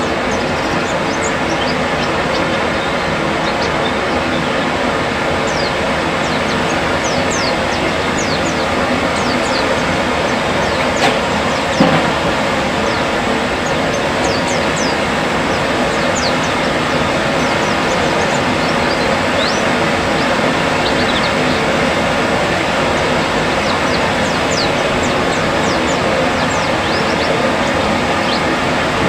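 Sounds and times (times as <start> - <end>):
loud rushing noise: 5.0 - 25.8.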